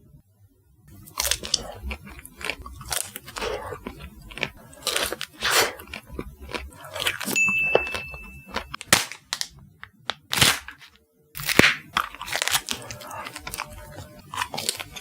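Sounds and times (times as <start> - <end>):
crunching ice cream bites: 0.9 - 15.0
thin high tone: 7.4 - 8.8.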